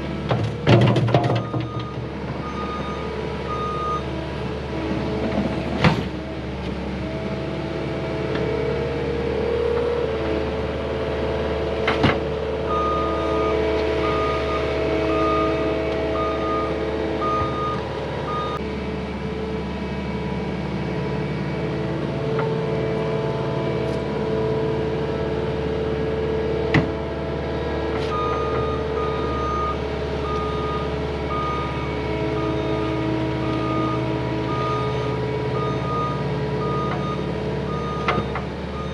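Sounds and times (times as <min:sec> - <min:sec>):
heavy machine engine running: 0:00.0 - 0:38.9
reversing alarm beeping: 0:01.3 - 0:04.1, 0:12.7 - 0:18.6, 0:28.1 - 0:38.9.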